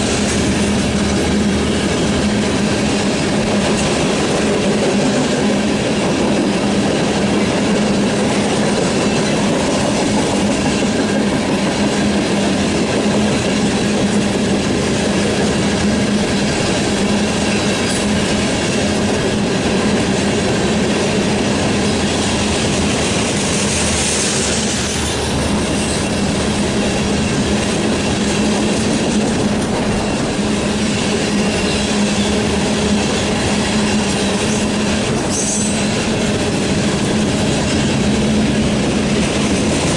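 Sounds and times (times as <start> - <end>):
freight train wheels rumbling: 0.0 - 39.9
high wheel squeal: 29.9 - 36.1.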